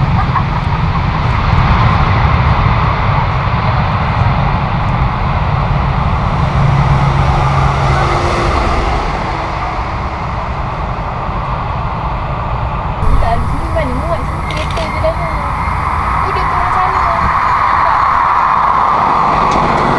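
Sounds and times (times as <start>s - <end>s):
jet engines roaring: 4.7s - 11.7s, 13.0s - 19.9s.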